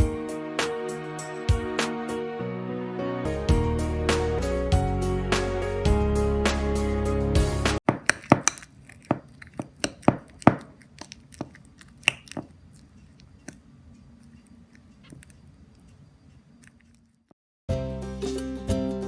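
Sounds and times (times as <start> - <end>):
popcorn popping: 7.8 - 13.6
low steady hum: 8.0 - 17.3.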